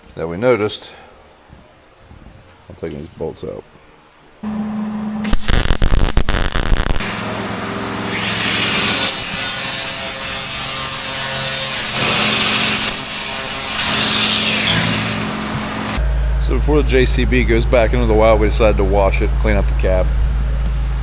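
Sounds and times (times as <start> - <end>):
rapid power tool hammering: 5.3 - 16.0
abrasive grinding on steel: 5.3 - 16.2.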